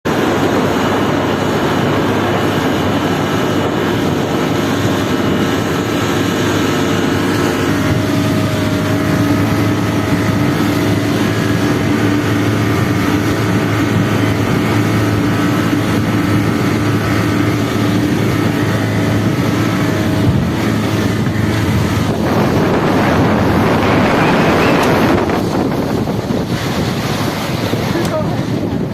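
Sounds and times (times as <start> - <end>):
boat engine running: 0.0 - 28.9
wind and water hiss: 0.1 - 28.9.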